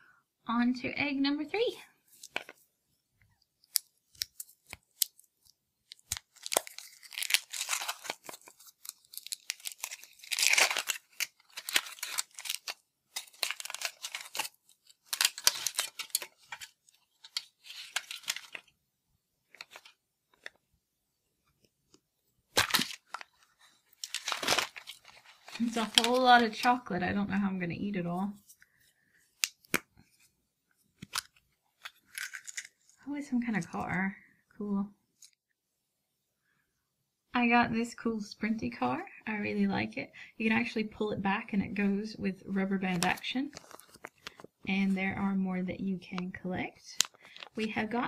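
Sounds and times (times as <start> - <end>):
foil wrapper crinkling and tearing: 3.7 - 18.7, 22.5 - 26.8, 31.0 - 32.9, 43.0 - 44.5.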